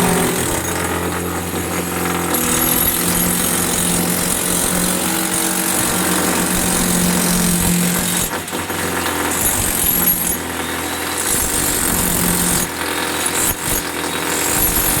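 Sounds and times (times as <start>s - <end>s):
power tool running: 0.0s - 15.0s.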